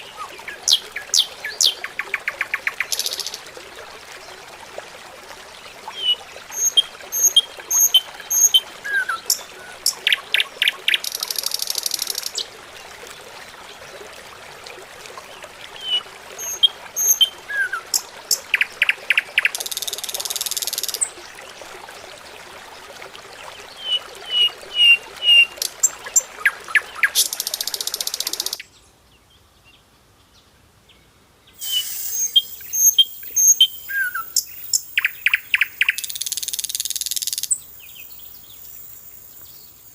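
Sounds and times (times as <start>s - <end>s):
high hiss: 31.6s - 32.8s
birds chirping: 31.6s - 36.3s.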